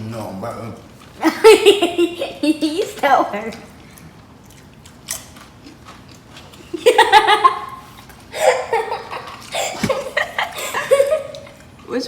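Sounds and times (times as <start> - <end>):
people laughing and giggling: 1.2 - 2.3, 6.8 - 7.8, 8.4 - 11.6.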